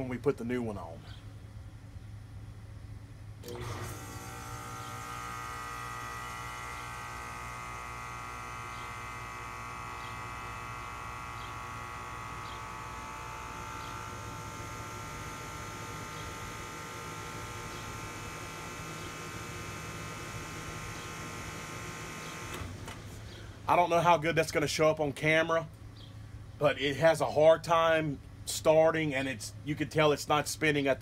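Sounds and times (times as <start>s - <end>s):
electric motor hum and whine: 0.9s - 23.9s.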